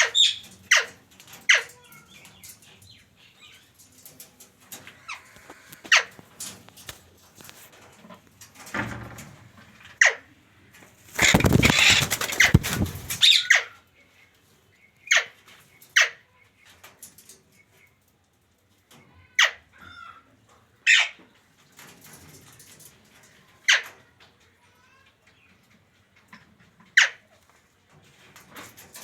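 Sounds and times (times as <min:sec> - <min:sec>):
scuffling and rustling: 0:11.0 - 0:13.3
parrot squawking: 0:11.2 - 0:13.7.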